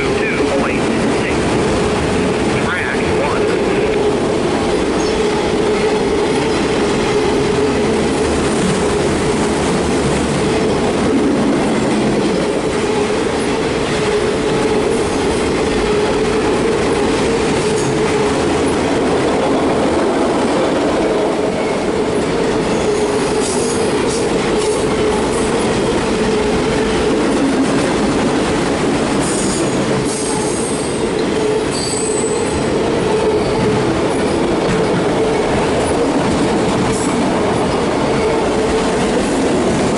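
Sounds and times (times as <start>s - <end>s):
freight train rumbling on rails: 0.0s - 39.9s
high-pitched wheel squeal: 29.3s - 33.8s.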